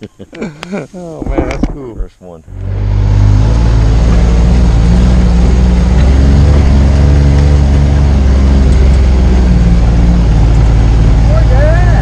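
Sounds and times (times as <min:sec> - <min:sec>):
vehicle engine running: 0:02.4 - 0:12.0.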